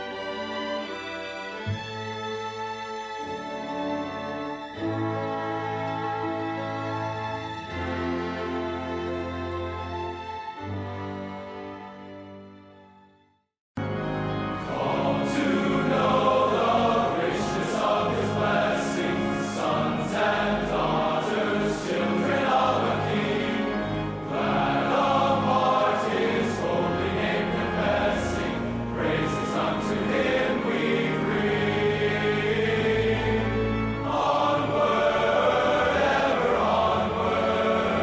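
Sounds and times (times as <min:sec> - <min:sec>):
orchestral accompaniment: 0:13.8 - 0:38.0
choir singing a hymn: 0:14.4 - 0:38.0.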